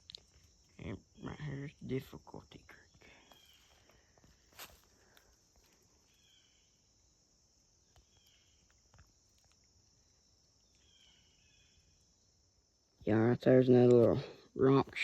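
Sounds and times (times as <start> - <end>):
faint insect chorus: 0.0 - 15.0
faint chirping call: 5.9 - 7.2, 7.8 - 12.4.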